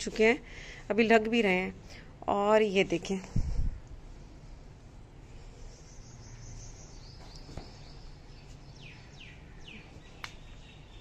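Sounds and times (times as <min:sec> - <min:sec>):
birds chirping: 0:05.2 - 0:11.0.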